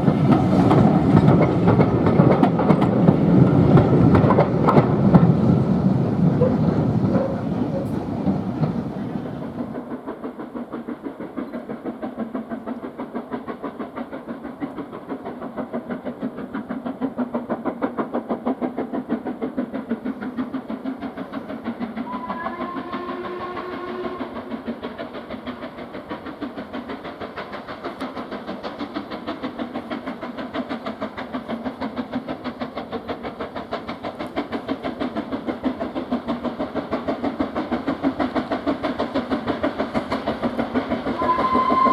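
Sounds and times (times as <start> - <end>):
steam locomotive exhaust beats: 0.0 - 41.9
steam whistle: 22.0 - 24.5, 41.2 - 41.9.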